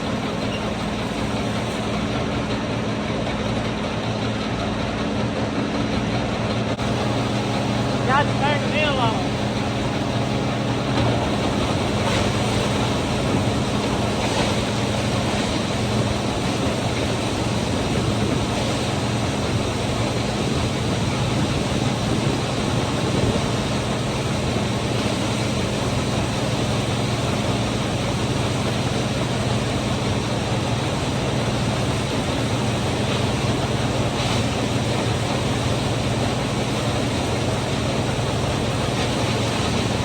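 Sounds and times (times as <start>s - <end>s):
feed mill grinding: 6.8s - 31.7s.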